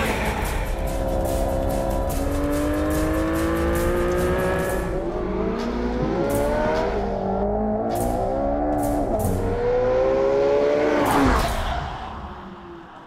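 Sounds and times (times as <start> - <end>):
car engine accelerating: 0.0 - 12.8.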